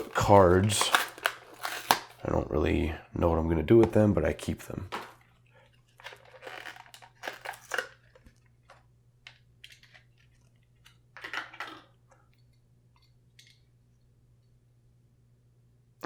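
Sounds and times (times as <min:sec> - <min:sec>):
packaging crinkling and tearing: 0:00.0 - 0:02.3, 0:04.9 - 0:08.8
faint steady hum: 0:00.0 - 0:16.0.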